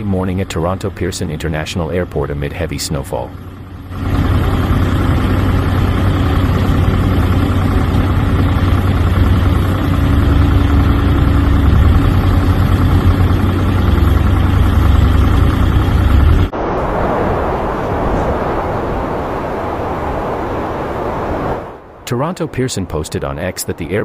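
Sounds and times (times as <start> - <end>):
faint hum: 0.0 - 24.0
vehicle engine rumbling: 0.0 - 24.0
noisy rushing sound: 16.0 - 24.0.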